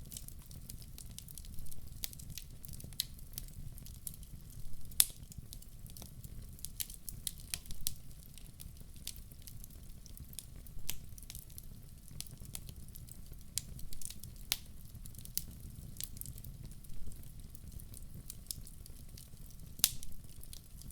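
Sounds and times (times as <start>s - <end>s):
wood fire crackling: 0.0s - 20.9s
sharp pops and snaps: 19.8s - 20.6s.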